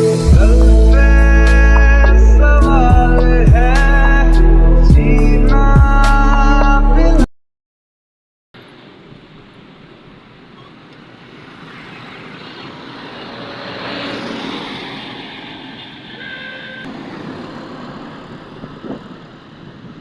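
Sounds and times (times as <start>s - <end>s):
road traffic noise: 0.0s - 5.6s, 8.6s - 20.0s
vehicle passing: 11.2s - 20.0s.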